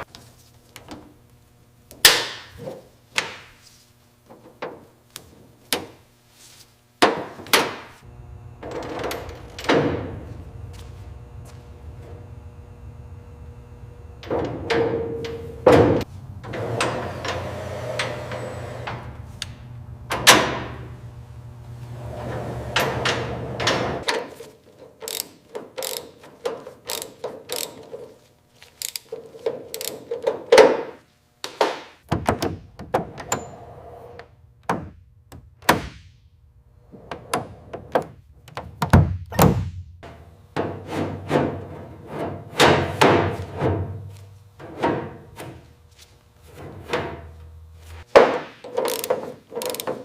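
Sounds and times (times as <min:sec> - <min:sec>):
low steady hum: 0:08.0 - 0:24.1.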